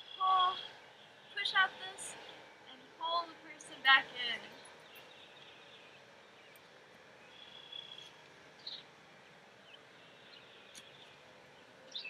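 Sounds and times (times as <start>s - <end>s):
faint bird chirps: 7.2s - 8.9s.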